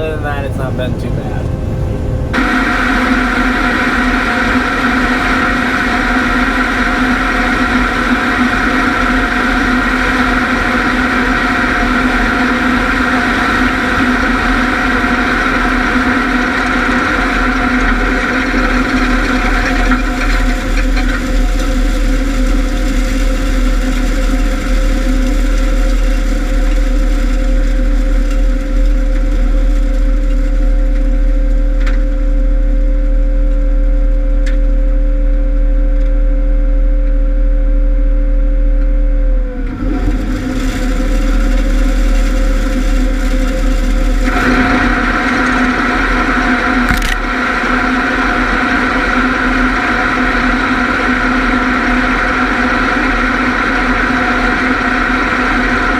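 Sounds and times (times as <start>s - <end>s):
rushing whir: 0.0s - 6.7s
combine harvester rumble and whine: 0.0s - 55.9s.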